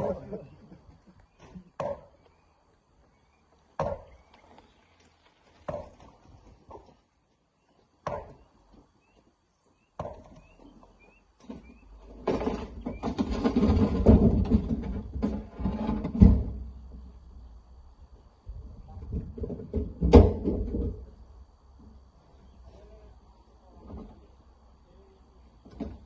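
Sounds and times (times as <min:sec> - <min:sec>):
rumbling clatter: 0:12.2 - 0:16.7.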